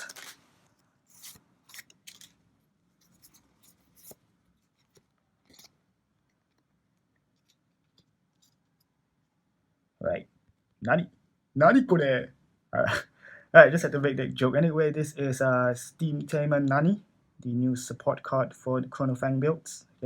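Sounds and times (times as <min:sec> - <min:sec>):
cards and wrapping rustling: 0:00.0 - 0:08.8.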